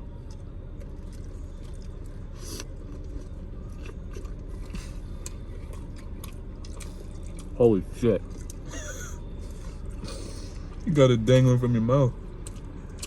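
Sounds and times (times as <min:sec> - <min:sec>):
low background hum: 0:00.0 - 0:13.0
person chewing food: 0:00.1 - 0:07.6, 0:08.2 - 0:10.9, 0:12.3 - 0:13.0.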